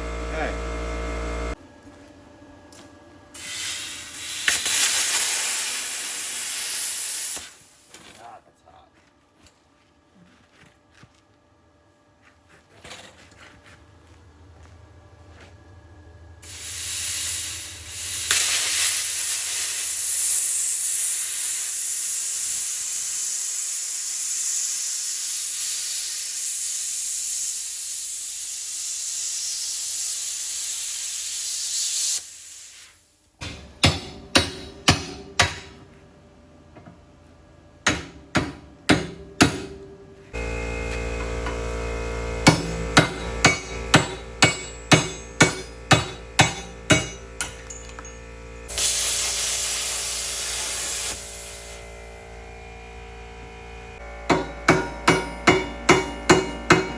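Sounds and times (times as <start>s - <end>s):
plasma cutter hissing: 3.4s - 7.9s, 16.4s - 33.2s, 42.5s - 47.5s, 48.7s - 52.4s.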